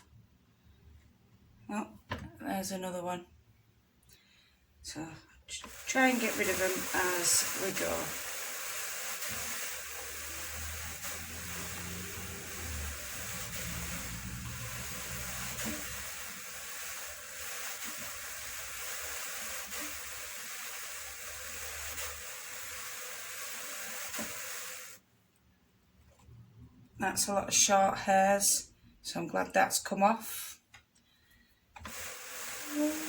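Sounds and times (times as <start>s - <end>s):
drum carder whirring: 5.5s - 25.0s, 31.8s - 33.0s.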